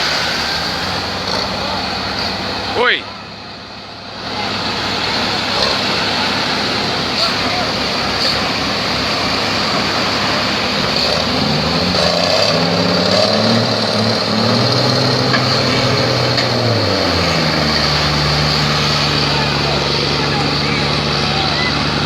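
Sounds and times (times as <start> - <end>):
boat engine running: 0.0 - 22.0
wash of noise: 0.0 - 22.0.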